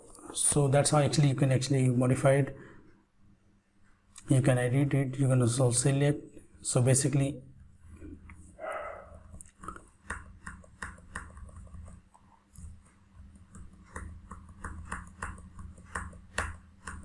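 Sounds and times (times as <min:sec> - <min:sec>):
low electrical hum: 0:00.0 - 0:17.0
mouse and keyboard clicking: 0:09.3 - 0:17.0.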